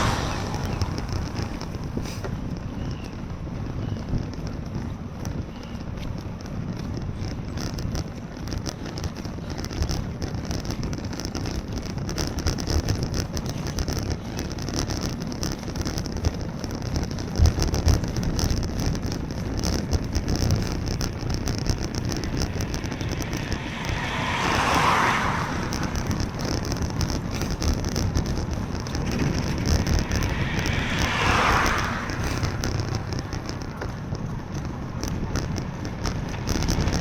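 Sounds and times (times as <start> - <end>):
hiss of passing vehicle: 0.0 - 2.5, 19.6 - 34.2
bicycle tyres on wet road: 0.0 - 37.0
wind buffeting microphone: 0.0 - 37.0.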